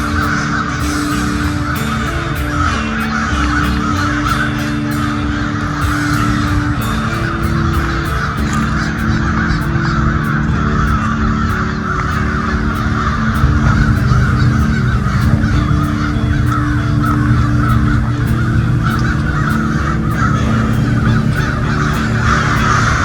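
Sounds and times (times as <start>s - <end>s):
flock of crows cawing: 0.0s - 23.0s.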